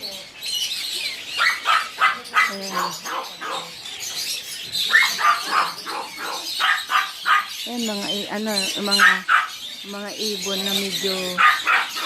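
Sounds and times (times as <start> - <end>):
caged birds chirping: 0.0 - 12.0.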